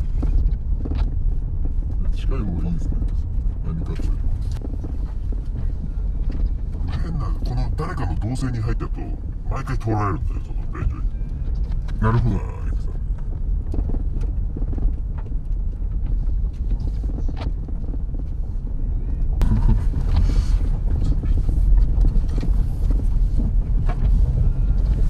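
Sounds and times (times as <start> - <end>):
car engine and tyres rumbling: 0.0 - 25.0.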